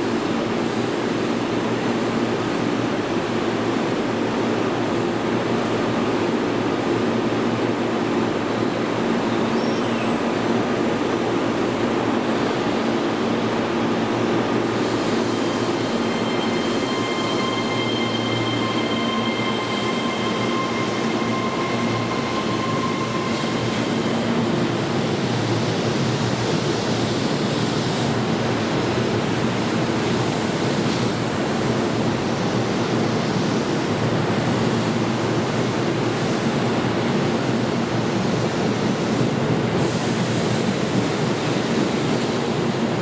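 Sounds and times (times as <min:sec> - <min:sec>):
electric train rumbling: 0:00.0 - 0:43.0
high whining tones: 0:09.3 - 0:25.8.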